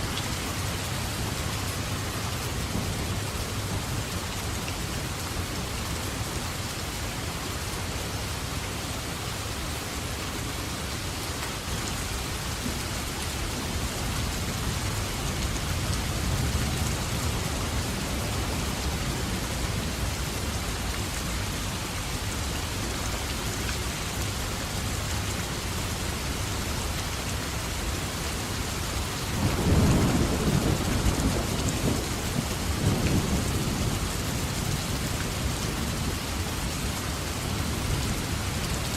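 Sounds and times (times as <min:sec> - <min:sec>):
rain falling: 0:00.0 - 0:38.9
thunder rumbling: 0:29.4 - 0:36.2.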